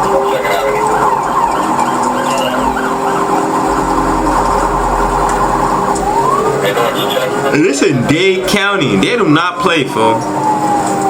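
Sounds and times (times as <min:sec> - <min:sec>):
police siren wailing: 0:00.0 - 0:11.0
low hum: 0:02.1 - 0:08.6.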